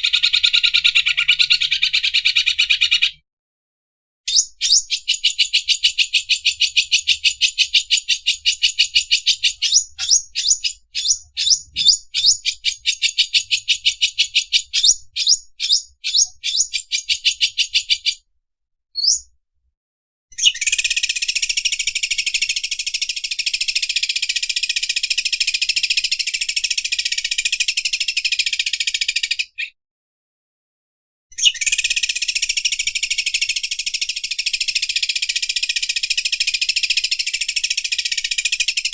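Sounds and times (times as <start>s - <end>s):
bird machine-like chatter: 0.0s - 3.2s, 4.6s - 18.2s.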